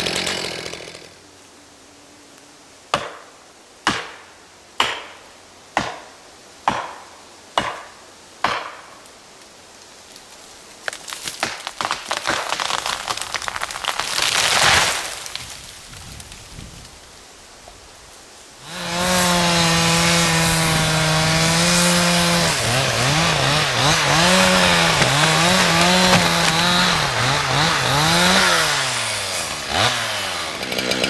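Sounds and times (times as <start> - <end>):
wood crackling and splintering: 0.0 - 1.2, 10.1 - 31.0
tree crashing down: 10.8 - 16.9, 18.8 - 31.0
sharp blows on felling wedge: 18.7 - 31.0.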